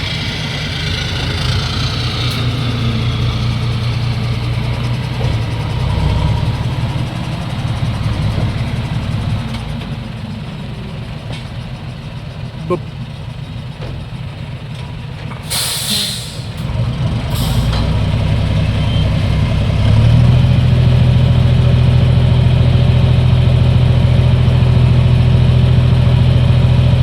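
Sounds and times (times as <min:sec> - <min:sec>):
diesel truck engine running: 0:00.0 - 0:27.0
air brake hisses: 0:15.4 - 0:16.6, 0:17.3 - 0:17.8.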